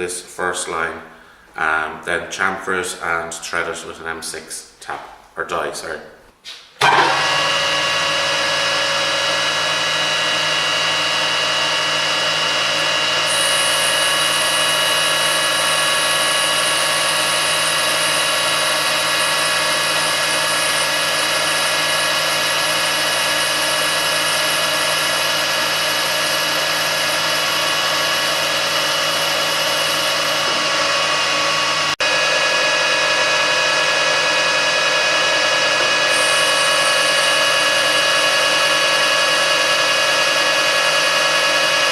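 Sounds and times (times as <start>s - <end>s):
lathe whining: 6.8s - 41.9s.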